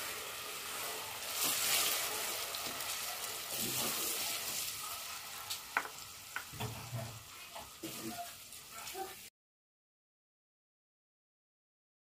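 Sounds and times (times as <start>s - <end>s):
pepper sizzling in hot oil: 0.0s - 9.3s
wooden spoon stirring pot: 0.6s - 9.2s.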